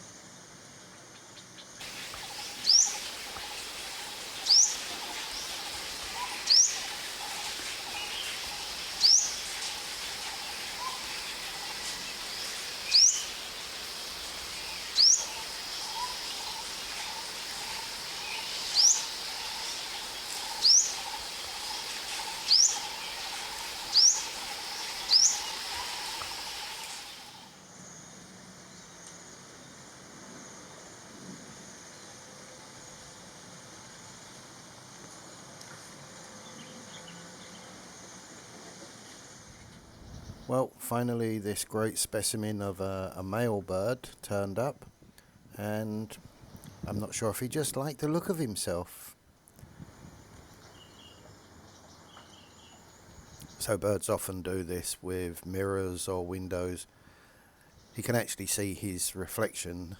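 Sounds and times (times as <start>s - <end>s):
outdoor ambience: 0.0s - 59.9s
faint lower chirping: 1.4s - 28.1s, 49.8s - 53.7s
bird calling sharp high tweets: 1.8s - 27.4s.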